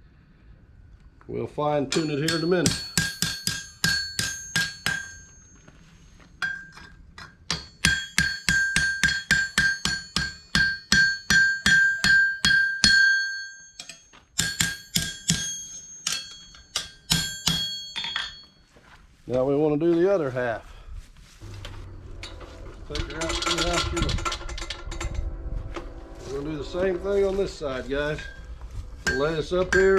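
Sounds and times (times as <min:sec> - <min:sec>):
hammer striking horseshoe on anvil: 0:01.9 - 0:05.7, 0:06.4 - 0:18.5, 0:29.0 - 0:29.9.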